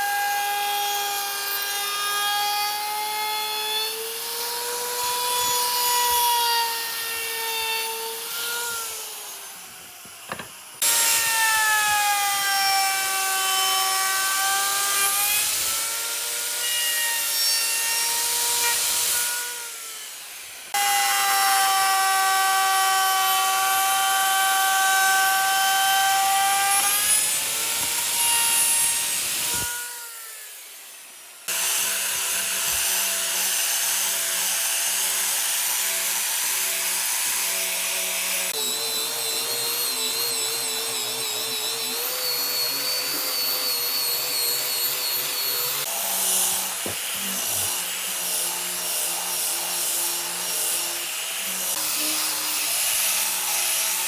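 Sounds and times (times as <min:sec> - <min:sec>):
power tool whining through wood: 0:00.0 - 0:54.0.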